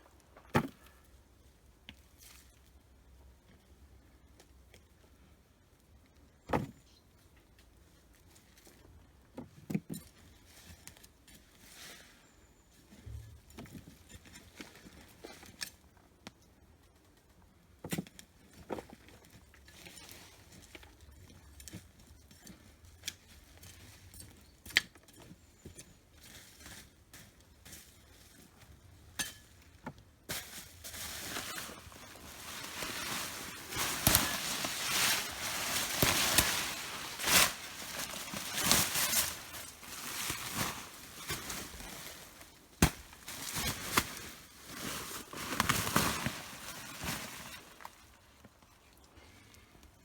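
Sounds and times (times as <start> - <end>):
earth crunching and rustling: 25.1 - 49.7.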